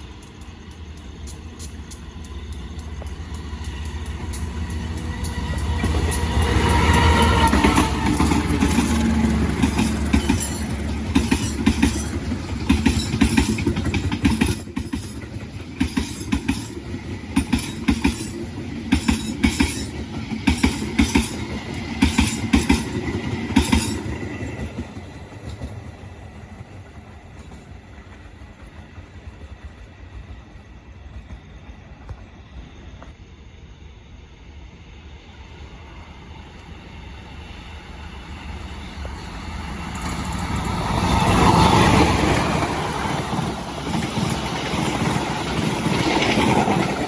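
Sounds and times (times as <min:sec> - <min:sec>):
train wheels clacking on rail joints: 0:00.0 - 0:32.3, 0:39.9 - 0:47.0
train low rumble: 0:00.0 - 0:47.0.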